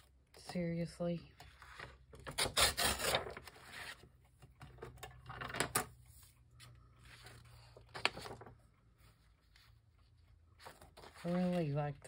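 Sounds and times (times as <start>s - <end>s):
paper rustling: 2.8s - 4.1s, 6.1s - 12.0s.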